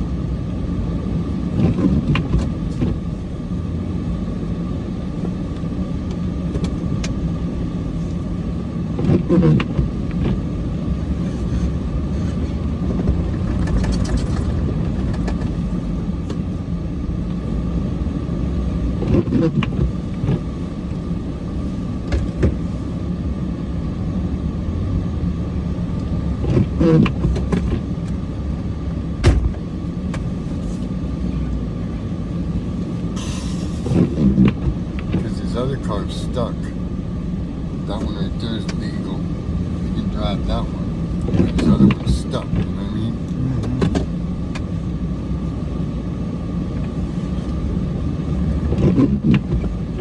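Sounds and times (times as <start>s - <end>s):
diesel truck engine rumble: 0.0s - 50.0s
sharp knocks and clunks: 29.2s - 30.2s.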